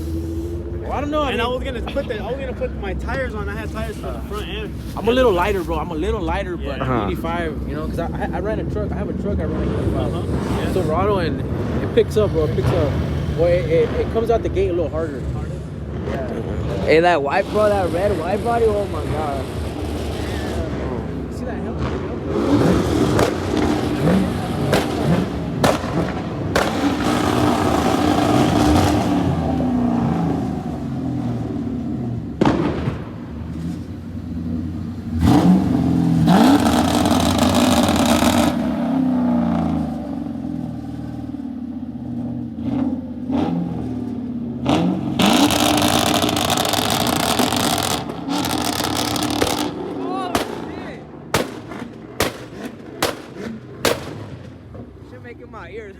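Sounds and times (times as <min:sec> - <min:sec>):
car engine revving: 0:00.0 - 0:55.9
sharp cracks: 0:22.8 - 0:29.1, 0:32.4 - 0:33.4, 0:45.3 - 0:54.7.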